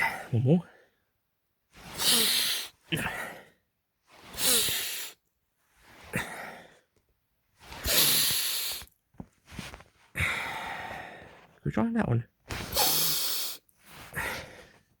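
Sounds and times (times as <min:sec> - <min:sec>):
person exhaling heavily: 0:01.9 - 0:03.5, 0:04.3 - 0:05.2, 0:07.8 - 0:08.9, 0:12.7 - 0:14.7.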